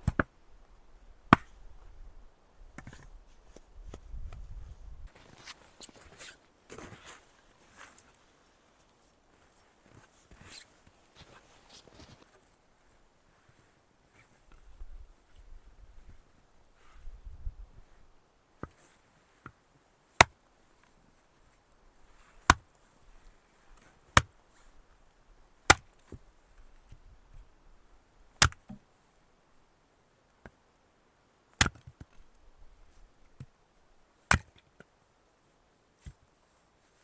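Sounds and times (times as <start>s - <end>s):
wood being chopped: 0.0s - 0.3s, 1.3s - 1.6s, 22.4s - 22.6s, 25.7s - 26.2s, 28.4s - 28.8s, 34.3s - 34.5s.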